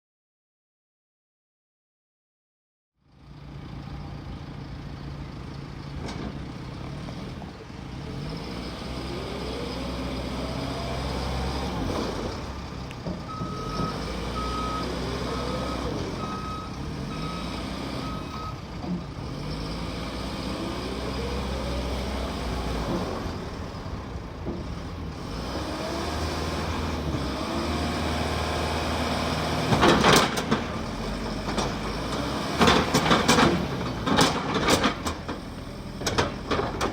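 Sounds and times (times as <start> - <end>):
diesel engine revving: 3.5 - 36.9
reversing alarm beeping: 13.3 - 18.7.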